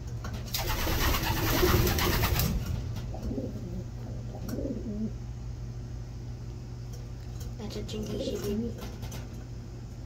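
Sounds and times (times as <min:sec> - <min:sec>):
pigeons cooing: 0:00.6 - 0:05.3.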